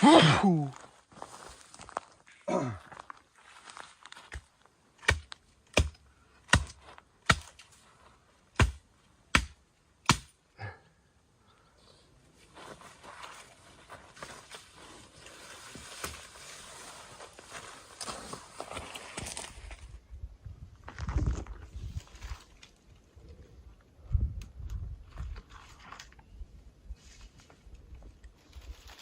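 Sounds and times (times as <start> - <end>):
chopping strikes on wood: 5.0 - 7.6, 8.6 - 10.4
rustling and crunching of branches: 12.4 - 20.0, 20.8 - 23.2, 25.0 - 29.0.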